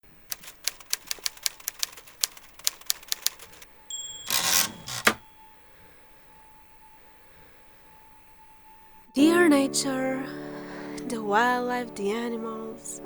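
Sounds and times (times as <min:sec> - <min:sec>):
typewriter carriage return swish: 0:00.3 - 0:03.6, 0:04.2 - 0:05.3
typewriter keys clacking: 0:00.3 - 0:05.2
typewriter carriage clack: 0:00.3 - 0:05.3.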